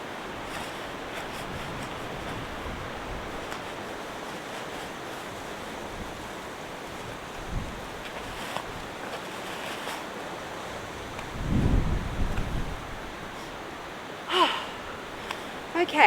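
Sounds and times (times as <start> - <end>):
strong wind blowing: 11.0 - 13.4, 14.3 - 16.0.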